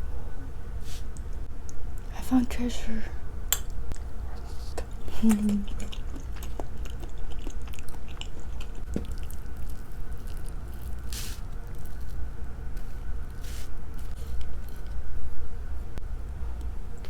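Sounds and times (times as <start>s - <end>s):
person chewing: 3.7s - 15.0s
breathy hiss: 11.0s - 11.6s, 12.8s - 14.4s.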